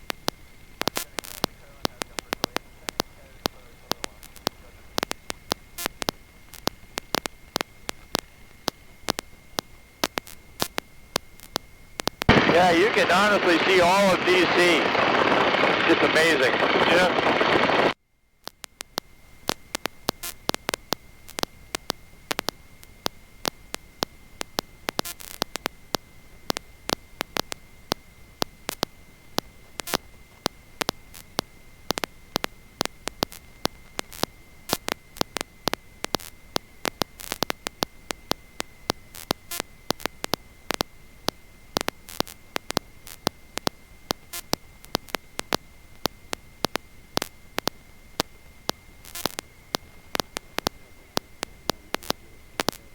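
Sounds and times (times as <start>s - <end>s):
static crackling clicks: 0.0s - 52.9s
high-pitched whine: 12.3s - 18.0s.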